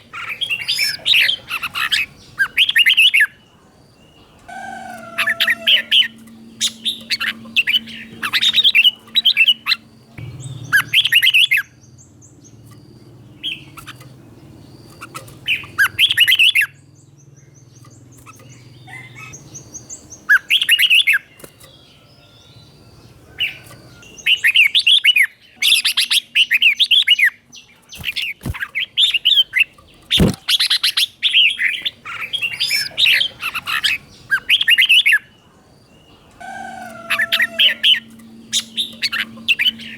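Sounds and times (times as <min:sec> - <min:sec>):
bird singing warbling phrases: 0:00.0 - 0:39.9
sharp clicks: 0:29.8 - 0:30.7.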